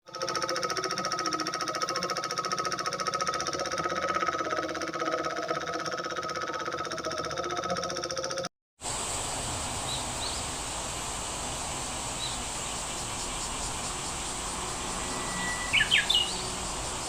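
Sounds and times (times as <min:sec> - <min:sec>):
small diesel engine knocking: 0:00.1 - 0:08.5.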